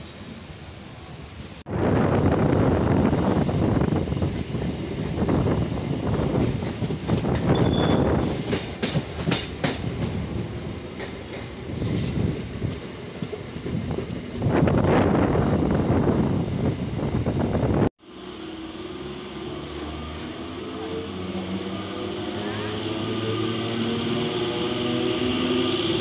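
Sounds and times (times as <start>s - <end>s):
train wheels rumbling on track: 1.8s - 26.0s
high-pitched wheel squeals: 6.5s - 9.0s, 11.8s - 12.4s.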